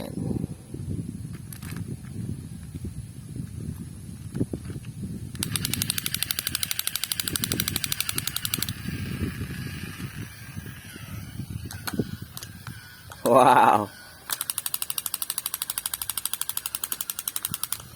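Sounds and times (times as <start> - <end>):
toy gun rapid clicking rattle: 5.4 - 17.9.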